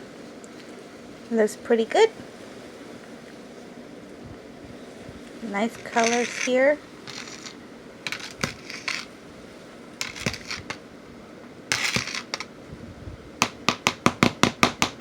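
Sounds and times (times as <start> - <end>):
tool scraping wet sand: 5.7 - 9.1, 10.0 - 10.8, 11.7 - 12.5
sharp taps: 13.4 - 15.0.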